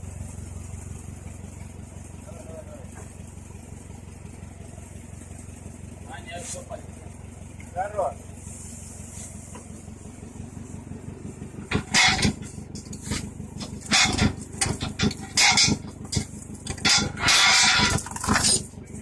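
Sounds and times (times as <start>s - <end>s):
vehicle engine idling: 0.0s - 19.0s
metallic clanks and knocks: 11.6s - 18.7s
metal rattling: 11.6s - 18.8s.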